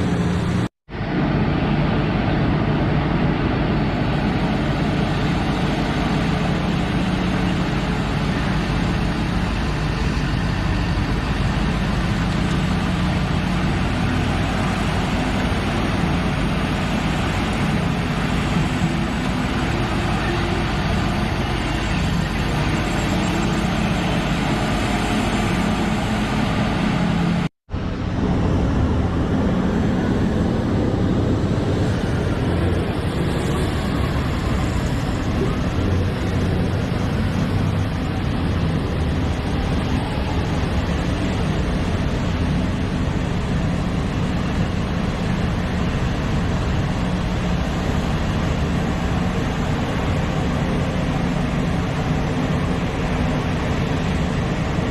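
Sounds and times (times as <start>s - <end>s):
excavator diesel engine rumbling: 0.0s - 54.9s.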